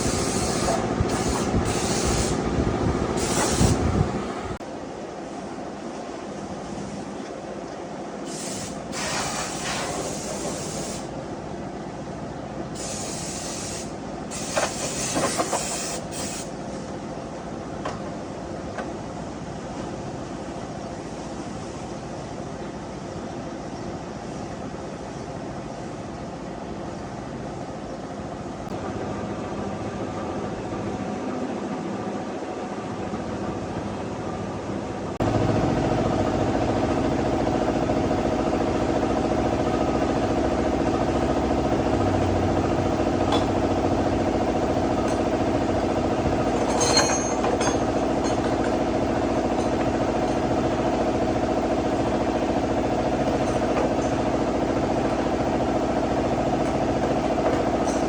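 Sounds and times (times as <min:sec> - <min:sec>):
motor humming steadily: 0:00.0 - 0:04.8, 0:28.6 - 0:58.0
metallic clatter: 0:46.5 - 0:48.8.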